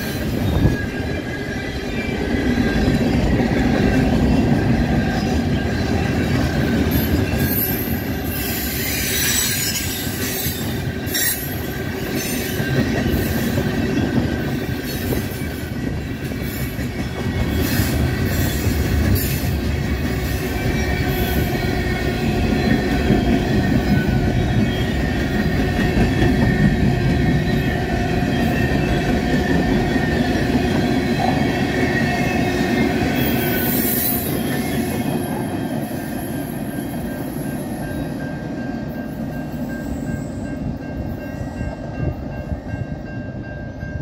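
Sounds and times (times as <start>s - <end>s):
freight train wheels rumbling: 0.0s - 44.0s
high-pitched wheel squeal: 5.1s - 11.6s, 33.1s - 35.4s.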